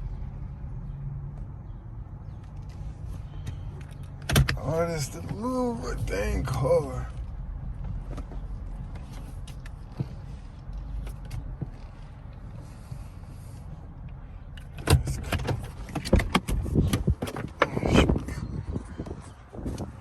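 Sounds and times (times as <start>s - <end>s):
low rumble: 4.8s - 14.6s.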